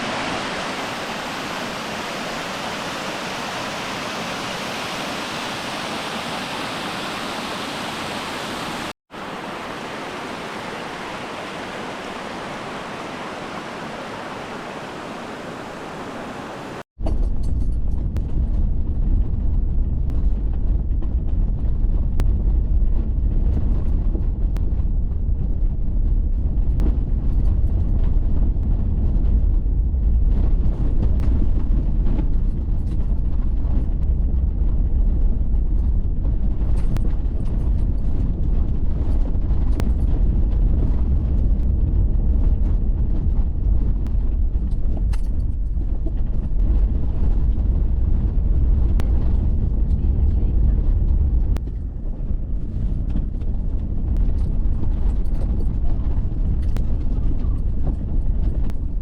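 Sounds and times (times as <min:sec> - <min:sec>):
waterfall rushing: 0:00.0 - 0:16.8.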